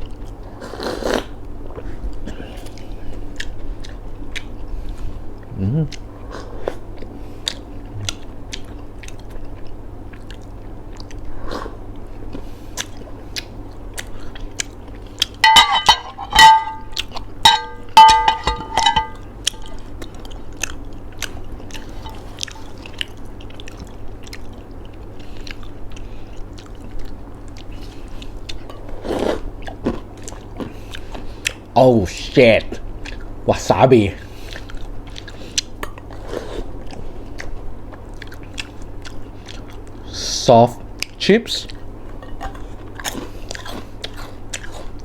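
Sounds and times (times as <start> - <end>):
crunchy snack chewing: 42.4 - 45.0.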